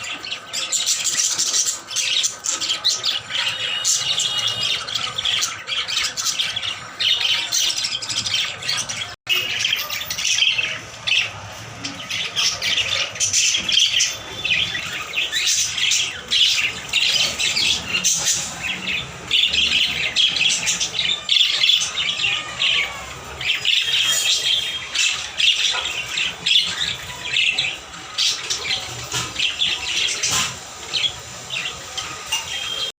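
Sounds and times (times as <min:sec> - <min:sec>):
parrots chattering and squawking: 0:00.0 - 0:32.9.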